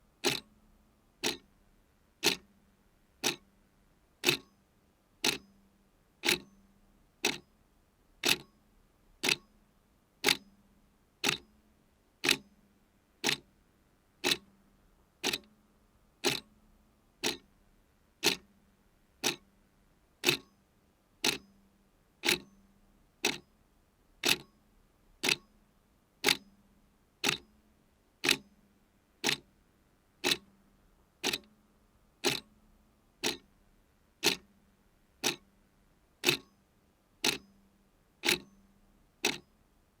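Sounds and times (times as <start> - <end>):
mechanical clock ticking: 0.2 - 0.5, 1.2 - 1.5, 2.2 - 2.5, 3.2 - 3.4, 4.2 - 4.5, 5.2 - 5.5, 6.2 - 6.5, 7.2 - 7.4, 8.2 - 8.5, 9.2 - 9.4, 10.2 - 10.4, 11.2 - 11.4, 12.2 - 12.4, 13.2 - 13.4, 14.2 - 14.5, 15.2 - 15.5, 16.2 - 16.5, 17.2 - 17.5, 18.2 - 18.5, 19.2 - 19.4, 20.2 - 20.5, 21.2 - 21.5, 22.2 - 22.5, 23.2 - 23.4, 24.2 - 24.5, 25.2 - 25.5, 26.2 - 26.4, 27.2 - 27.4, 28.2 - 28.4, 29.2 - 29.5, 30.2 - 30.5, 31.2 - 31.5, 32.2 - 32.5, 33.2 - 33.5, 34.2 - 34.5, 35.2 - 35.5, 36.2 - 36.5, 37.2 - 37.6, 38.2 - 38.6, 39.2 - 39.5.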